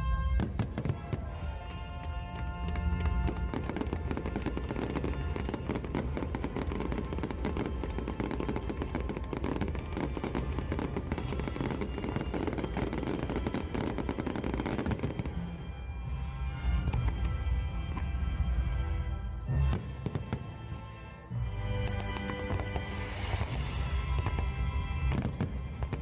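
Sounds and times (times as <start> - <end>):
faint music: 0.0 - 26.0
fireworks bangs and pops: 0.4 - 15.4, 19.7 - 20.6, 21.8 - 26.0.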